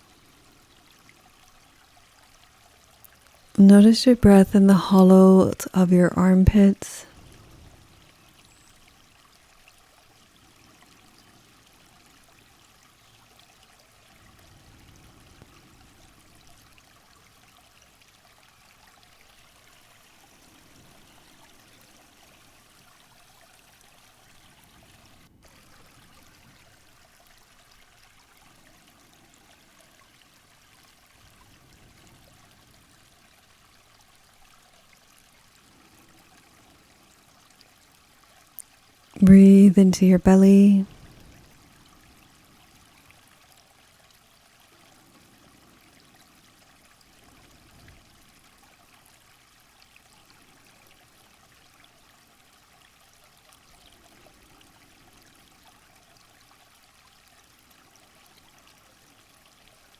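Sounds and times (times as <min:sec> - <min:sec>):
faint running water: 0:00.0 - 0:59.9.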